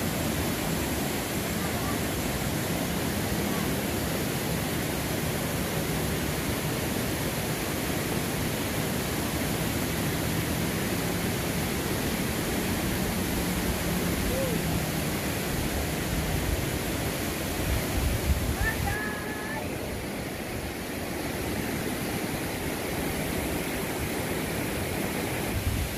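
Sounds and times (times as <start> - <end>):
river water rushing over rocks: 0.0 - 25.9.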